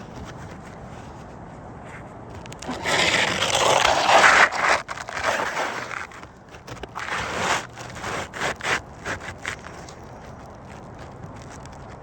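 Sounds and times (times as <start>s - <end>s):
metal tool scraping roof shingles: 2.4s - 12.0s.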